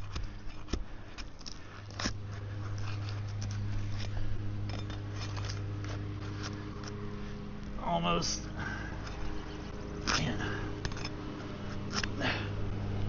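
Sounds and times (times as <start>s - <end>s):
low hum: 0.0s - 13.0s
shingles being pried loose: 10.0s - 12.2s.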